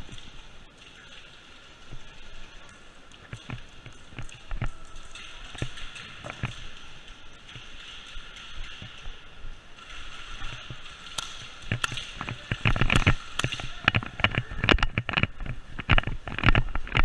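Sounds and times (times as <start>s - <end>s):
clatter of knocks and clicks: 3.2s - 9.2s, 9.8s - 17.0s.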